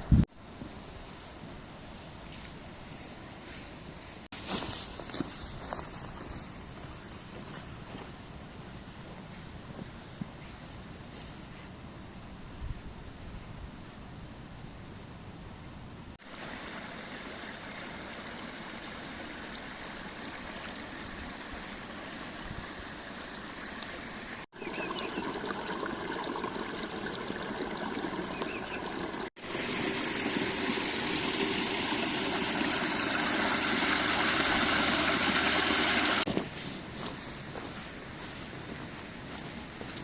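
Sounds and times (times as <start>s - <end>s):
stream water running and splashing: 16.2s - 36.3s.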